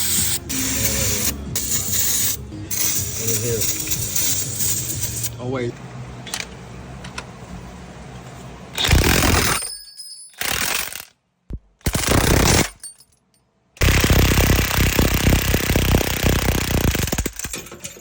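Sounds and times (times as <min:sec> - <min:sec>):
impact wrench hammering: 0:13.8 - 0:18.0.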